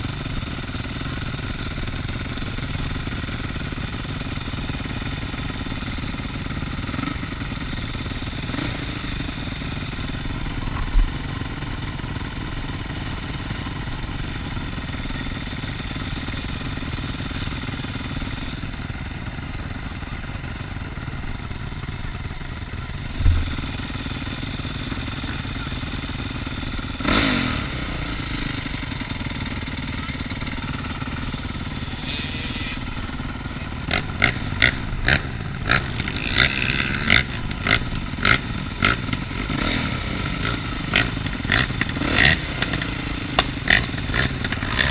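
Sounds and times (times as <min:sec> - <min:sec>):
motocross engine running: 0:00.0 - 0:44.9
low thumps: 0:23.1 - 0:23.7.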